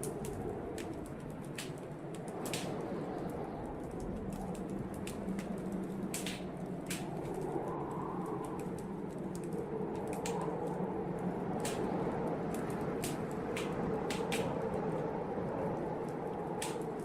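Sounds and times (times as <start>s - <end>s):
fire low rushing: 0.0s - 17.0s
wood fire crackling and popping: 0.0s - 17.0s.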